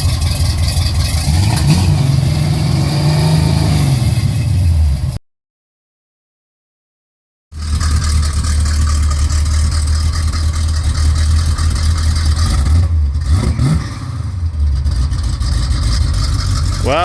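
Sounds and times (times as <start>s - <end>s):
car engine idling: 0.0s - 1.5s, 7.6s - 17.0s.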